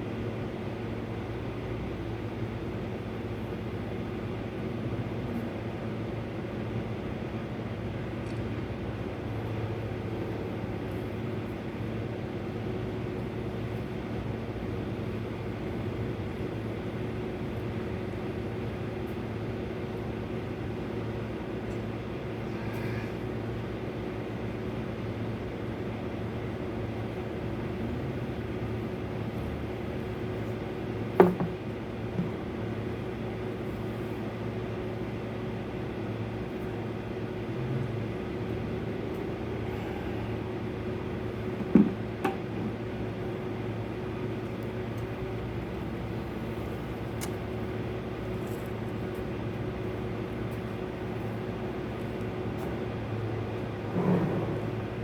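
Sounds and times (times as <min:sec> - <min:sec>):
sharp knocks or clunks: 0:31.2 - 0:31.6.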